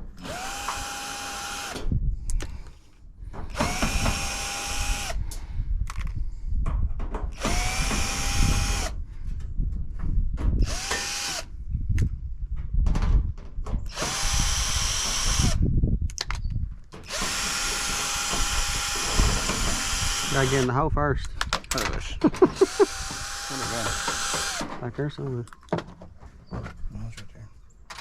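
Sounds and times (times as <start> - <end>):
power drill whining: 0.1 - 1.9, 3.4 - 5.4, 7.4 - 9.0, 10.6 - 11.5, 13.9 - 15.7, 17.0 - 20.7, 22.4 - 24.8
knocks and clatter: 12.6 - 13.9.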